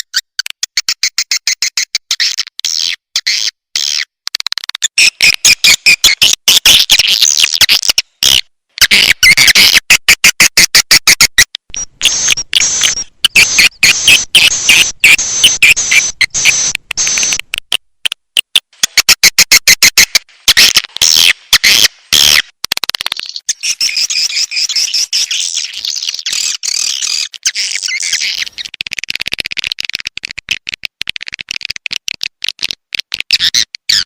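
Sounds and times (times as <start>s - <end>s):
rapid chattering bird chirps: 0.0s - 4.2s, 4.9s - 9.8s, 11.7s - 17.4s, 23.0s - 30.0s.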